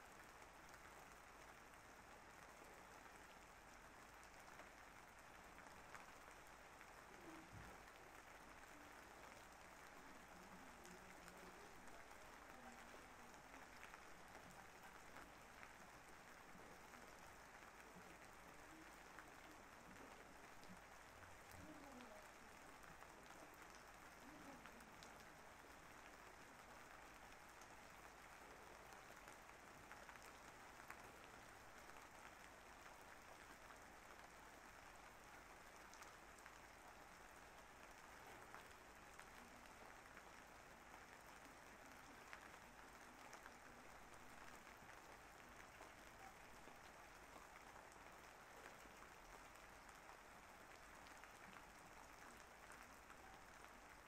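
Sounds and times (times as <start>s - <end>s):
faint steady rain: 0.0s - 54.0s.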